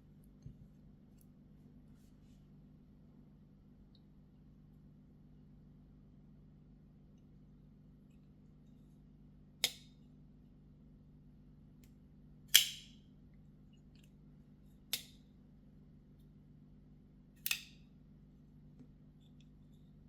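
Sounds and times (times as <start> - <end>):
folding knife clicking open and shut: 9.6 - 9.9, 12.5 - 13.0, 14.9 - 15.2, 17.4 - 17.8.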